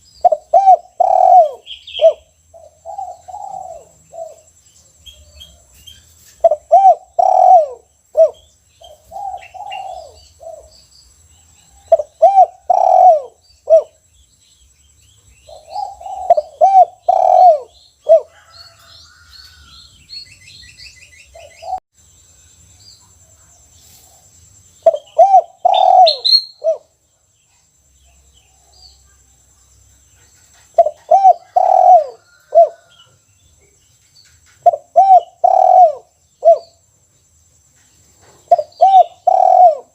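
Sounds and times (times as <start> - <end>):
small birds chirping: 0.0 - 39.9
dove cooing: 0.2 - 4.5, 6.4 - 10.8, 11.8 - 14.0, 15.4 - 18.9, 24.8 - 26.9, 30.6 - 33.0, 34.6 - 36.8, 38.5 - 39.9.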